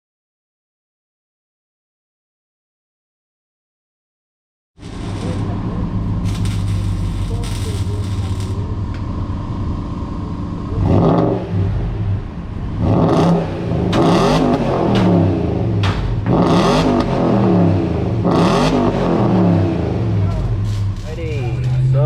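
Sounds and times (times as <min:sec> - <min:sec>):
car engine revving: 0:04.8 - 0:22.0.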